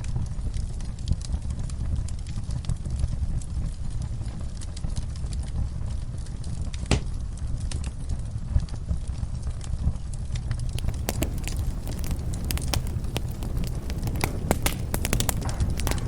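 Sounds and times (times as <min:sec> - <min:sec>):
low rumble of burning: 0:00.0 - 0:16.0
fire popping: 0:10.6 - 0:16.0
wood fire crackling: 0:10.6 - 0:16.0.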